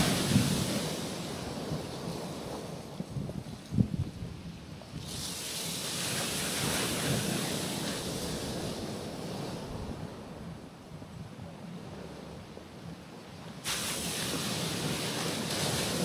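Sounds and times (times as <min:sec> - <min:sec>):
waves washing on rocks: 0:00.0 - 0:03.8, 0:04.8 - 0:10.4, 0:13.5 - 0:16.0.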